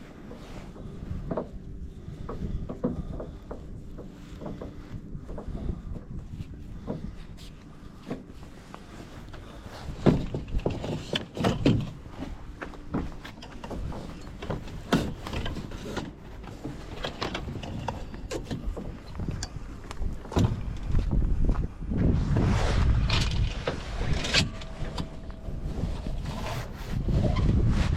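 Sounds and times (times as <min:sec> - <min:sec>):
low wind rumble: 0:00.0 - 0:27.9
knocks and bumps from dinghy gear: 0:09.9 - 0:19.0.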